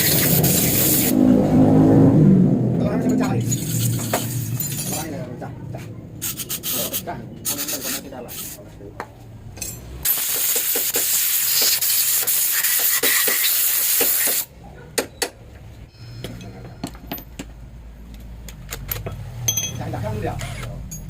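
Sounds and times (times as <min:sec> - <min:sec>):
pressurised air hissing: 0:00.0 - 0:01.2, 0:06.2 - 0:08.6, 0:10.1 - 0:14.5
light metal knocks and clinks: 0:09.5 - 0:10.0, 0:16.2 - 0:20.0.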